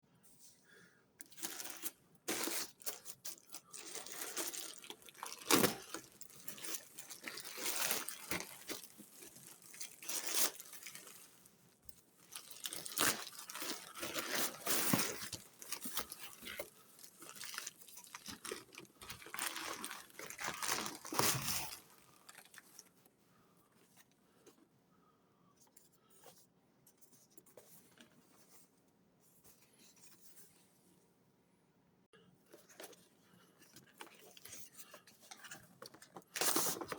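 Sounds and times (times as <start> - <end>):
faint handling sounds: 0.1 - 31.2, 32.2 - 36.9
packaging being torn and crinkled: 1.4 - 11.4, 12.3 - 22.7.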